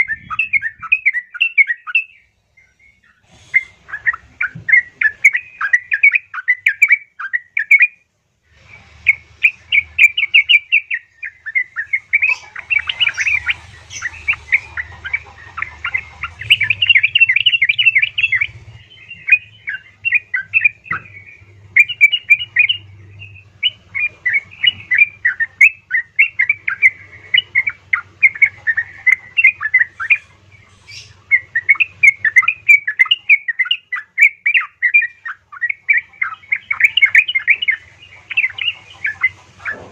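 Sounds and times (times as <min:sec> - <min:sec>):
faint low hum: 0:00.0 - 0:39.9
bird chattering call: 0:09.1 - 0:39.9.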